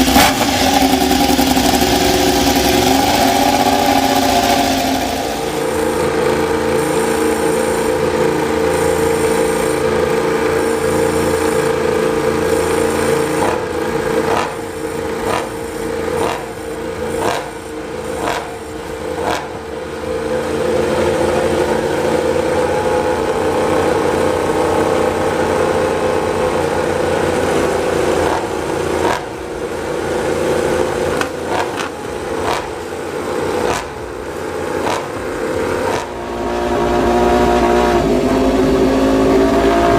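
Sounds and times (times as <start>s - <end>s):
racing motorcycle engines revving: 0.0s - 39.9s.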